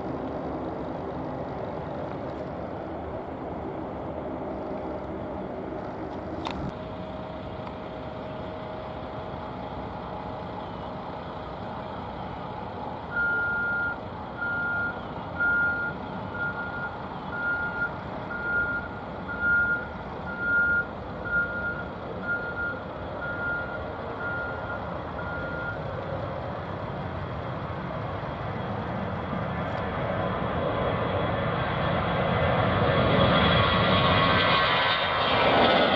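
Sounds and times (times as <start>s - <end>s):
background traffic rumble: 0.0s - 35.9s
reversing alarm beeping: 13.1s - 25.9s.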